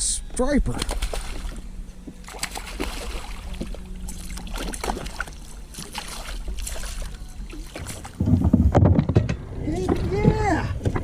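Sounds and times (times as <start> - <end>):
water splashes: 0.7 - 8.8
clicks and knocks on kayak: 8.2 - 11.0.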